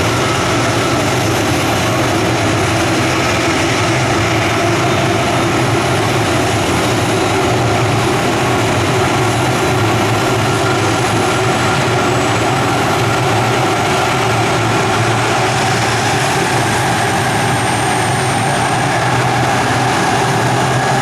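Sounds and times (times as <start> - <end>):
jet airliner engine rumble: 0.0 - 21.0.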